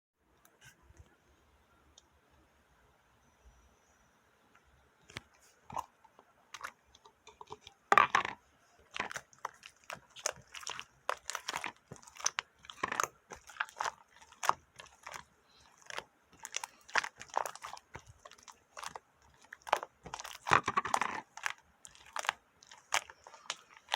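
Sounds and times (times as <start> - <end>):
cat crunching dry food: 7.4 - 23.9.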